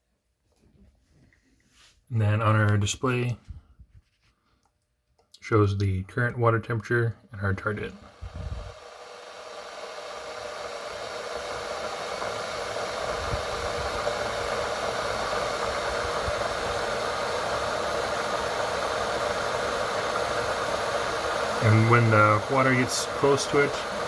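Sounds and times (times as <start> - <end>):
electric kettle hissing: 7.6 - 24.0.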